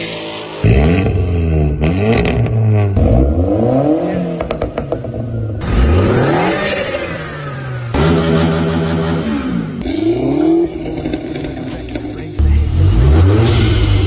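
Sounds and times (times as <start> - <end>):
car engine revving: 0.0 - 14.0
exhaust cracks: 4.4 - 14.0.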